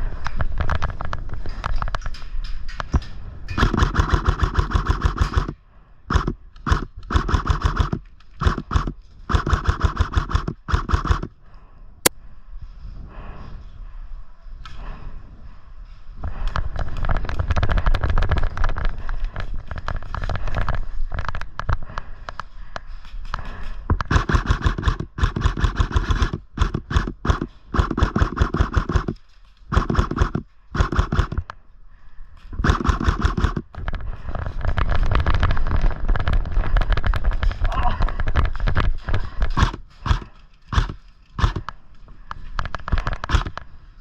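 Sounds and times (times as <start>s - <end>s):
airsoft guns firing automatic bursts: 3.6s - 11.3s, 24.0s - 31.4s, 32.6s - 33.7s, 39.5s - 41.7s, 43.0s - 43.6s.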